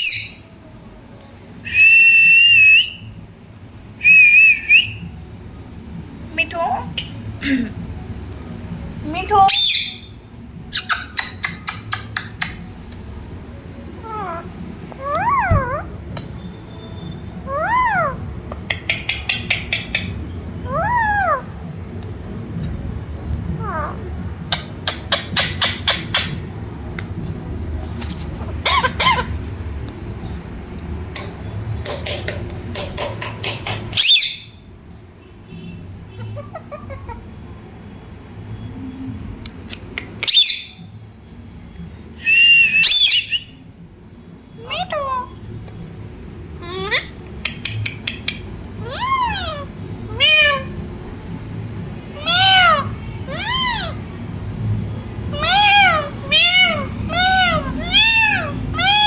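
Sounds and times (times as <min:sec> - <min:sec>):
parrot squeaky calls: 0:00.0 - 0:00.5, 0:09.4 - 0:12.7, 0:14.0 - 0:21.6, 0:23.6 - 0:26.5, 0:27.8 - 0:29.4, 0:33.9 - 0:34.6, 0:36.2 - 0:37.2, 0:40.2 - 0:40.9, 0:42.7 - 0:43.5, 0:44.6 - 0:45.4, 0:46.6 - 0:50.8, 0:52.2 - 0:54.0, 0:55.3 - 0:59.0
parrot sharp clicks: 0:10.8 - 0:13.0, 0:18.7 - 0:20.2, 0:47.4 - 0:48.5
parrot high screech: 0:14.0 - 0:15.9, 0:17.5 - 0:18.2, 0:42.8 - 0:43.4, 0:48.8 - 0:50.8, 0:52.2 - 0:54.0, 0:55.3 - 0:59.0.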